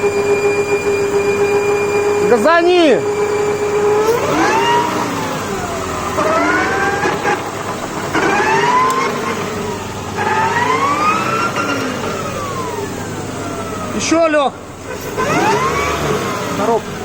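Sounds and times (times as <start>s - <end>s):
whistle rising and falling in pitch: 0.0s - 7.4s, 8.1s - 14.0s
car engine revving: 0.0s - 17.0s.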